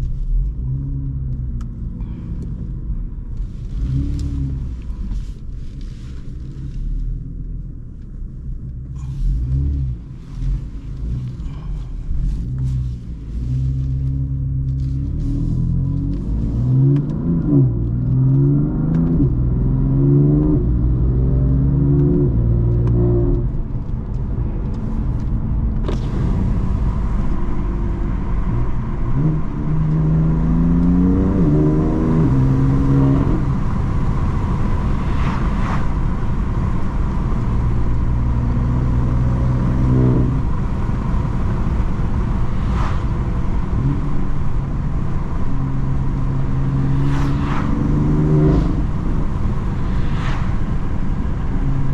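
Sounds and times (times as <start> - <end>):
car engine accelerating: 0.0 - 51.9
exhaust cracks: 22.0 - 30.5.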